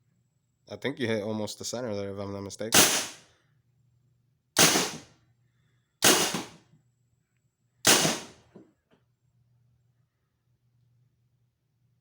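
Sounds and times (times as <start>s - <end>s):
paintball marker shots: 2.8s - 3.2s, 4.6s - 5.1s, 6.0s - 6.6s, 7.9s - 8.4s.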